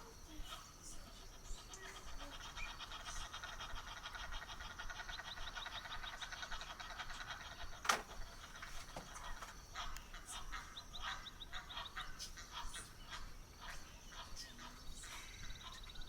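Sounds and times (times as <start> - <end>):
pulsed trilling animal call: 0.9 - 7.8.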